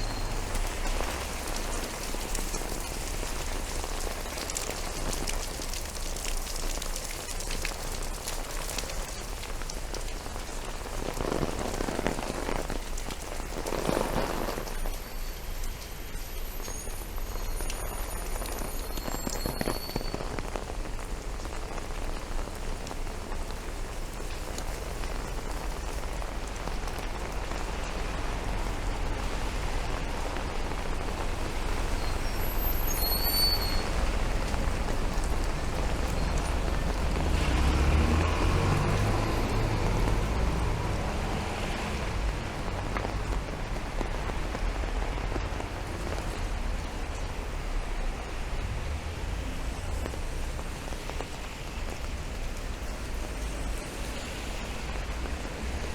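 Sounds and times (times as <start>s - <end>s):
rain falling on pavement: 0.0s - 55.9s
vehicle passing: 35.7s - 43.2s.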